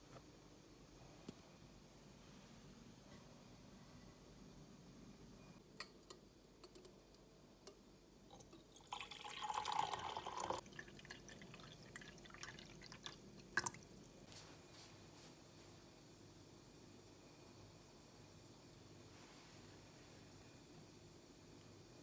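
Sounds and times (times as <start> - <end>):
liquid being poured: 8.3 - 14.1.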